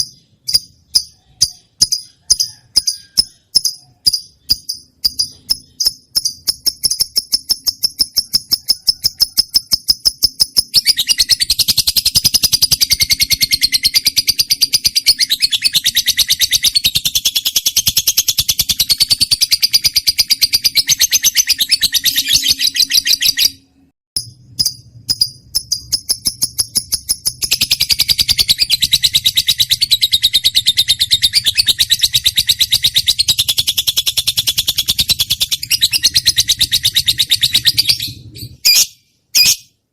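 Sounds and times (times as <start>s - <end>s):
bird chirping and chattering trill: 0.0s - 39.8s.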